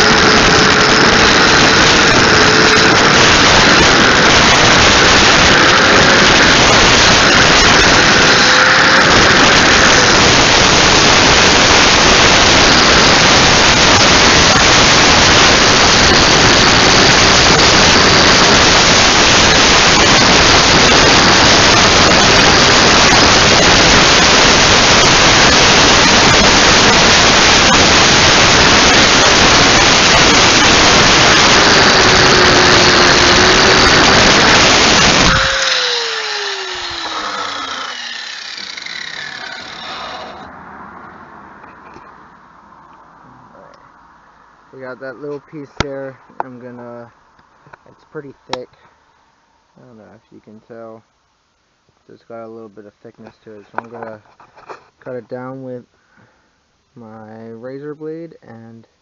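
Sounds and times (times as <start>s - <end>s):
power grinder running: 0.0s - 40.5s.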